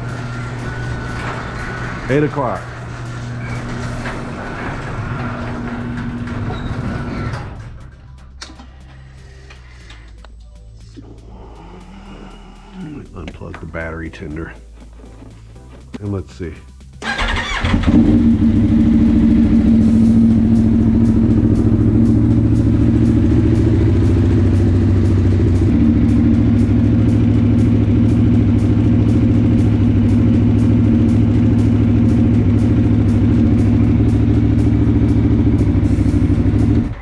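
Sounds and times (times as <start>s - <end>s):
motorcycle engine idling: 0.0s - 4.4s, 15.7s - 37.0s.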